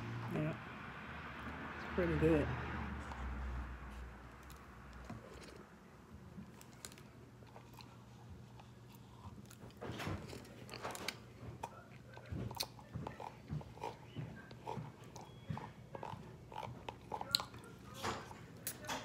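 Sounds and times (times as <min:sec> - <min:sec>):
chewing and mouth sounds: 0:06.4 - 0:19.0.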